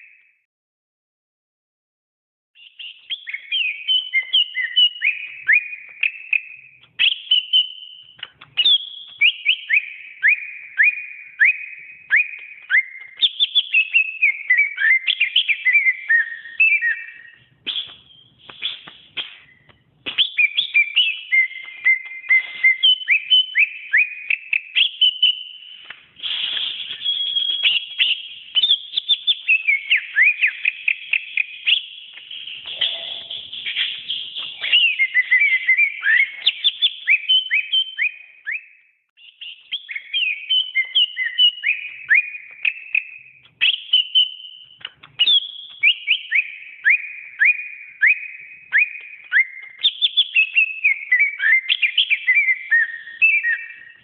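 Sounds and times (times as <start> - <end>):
bird singing whistled phrases: 0.0 - 0.4, 2.6 - 54.0.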